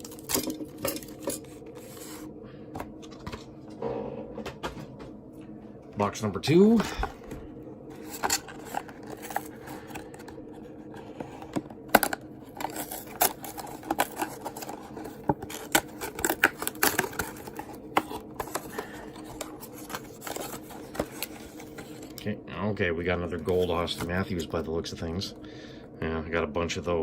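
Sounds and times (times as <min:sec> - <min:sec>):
cards being handled: 0:06.6 - 0:22.2.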